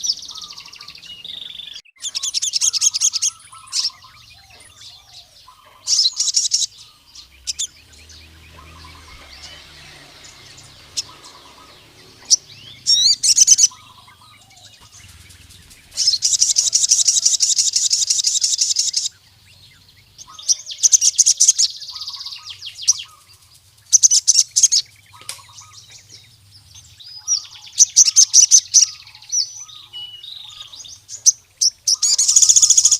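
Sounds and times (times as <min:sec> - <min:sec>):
bird soft chirps: 0:00.0 - 0:32.9
bird rattling trills: 0:02.0 - 0:19.2, 0:30.4 - 0:32.9.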